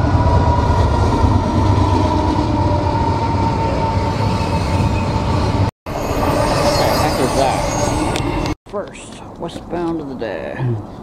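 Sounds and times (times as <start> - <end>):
heavy rumble of train wheels: 0.0 - 8.6.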